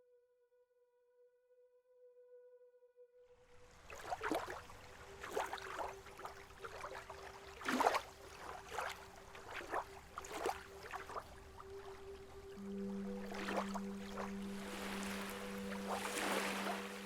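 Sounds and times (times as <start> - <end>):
lake water lapping: 3.6 - 17.0
faint steady hum: 8.2 - 17.0.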